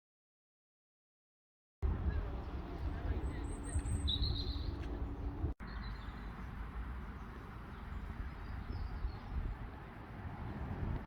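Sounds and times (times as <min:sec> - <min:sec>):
wind buffeting microphone: 0:06.7 - 0:11.0.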